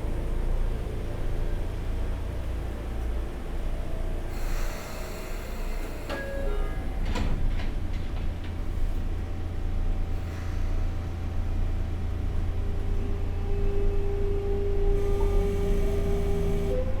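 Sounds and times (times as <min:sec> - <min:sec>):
train low hum: 0:00.0 - 0:17.0
train inverter whine: 0:09.9 - 0:17.0.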